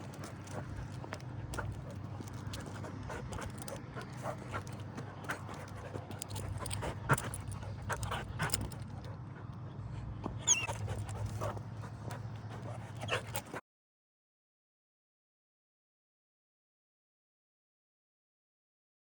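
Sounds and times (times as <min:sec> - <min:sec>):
dog panting and whimpering: 0:00.0 - 0:13.6
dog whining: 0:10.4 - 0:11.5, 0:12.8 - 0:13.5.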